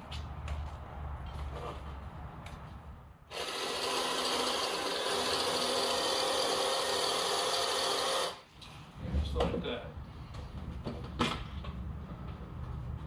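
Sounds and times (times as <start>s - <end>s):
power drill running: 3.3s - 8.4s.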